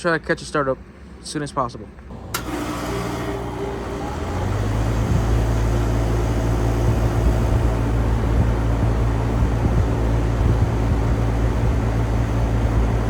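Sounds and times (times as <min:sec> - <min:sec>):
air conditioner compressor humming: 0:00.0 - 0:13.0
air conditioner switch click: 0:02.3 - 0:03.9.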